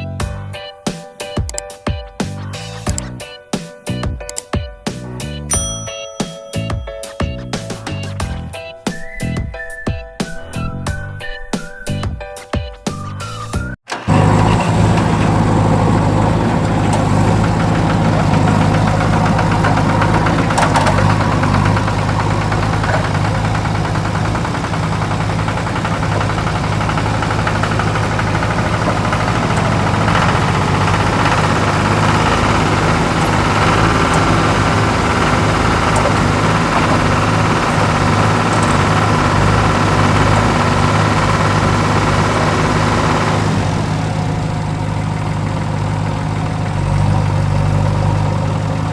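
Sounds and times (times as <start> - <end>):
vehicle engine running steadily: 13.6 - 48.9.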